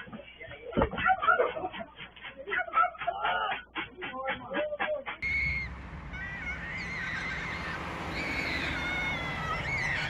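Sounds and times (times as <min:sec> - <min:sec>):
high wavering animal calls: 0:05.2 - 0:10.0
low steady rumble: 0:05.2 - 0:10.0.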